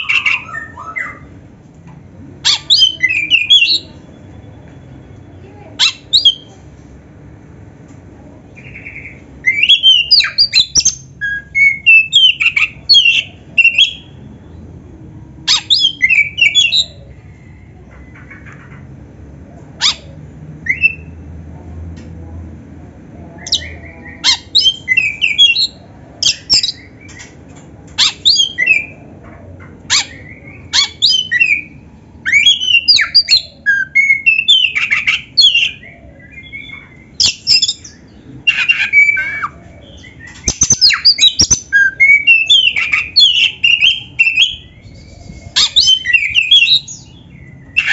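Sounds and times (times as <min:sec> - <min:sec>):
bird singing whistles and chatter: 0:02.4 - 0:04.2, 0:05.8 - 0:06.5, 0:08.6 - 0:14.2, 0:23.4 - 0:27.3, 0:28.0 - 0:29.0, 0:29.9 - 0:47.9.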